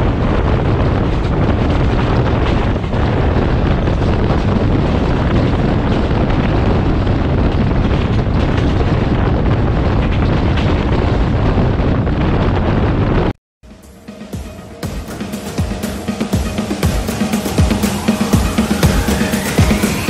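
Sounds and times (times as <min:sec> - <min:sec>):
wind rushing over microphone: 0:00.0 - 0:13.4
train wheels rumbling on rails: 0:00.0 - 0:20.0.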